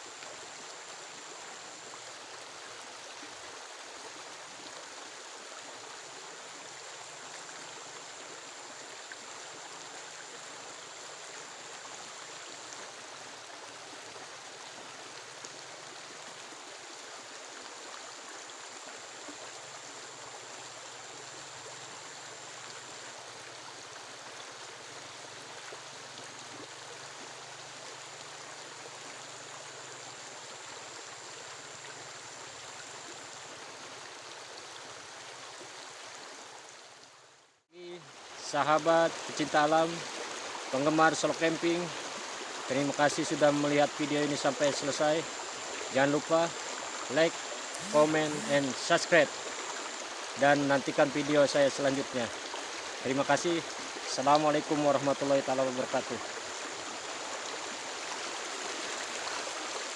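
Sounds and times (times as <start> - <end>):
rushing water: 0.0 - 59.9
thin high whine: 47.7 - 48.8.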